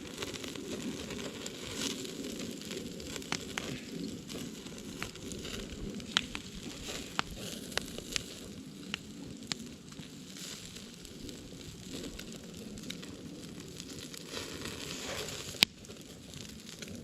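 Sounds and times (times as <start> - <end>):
fire crackling and popping: 0.0 - 17.0
wood fire burning: 0.0 - 17.0.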